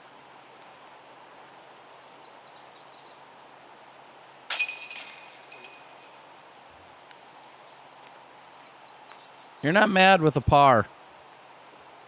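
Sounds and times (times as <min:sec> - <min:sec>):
disc striking metal chains: 0:04.5 - 0:06.4.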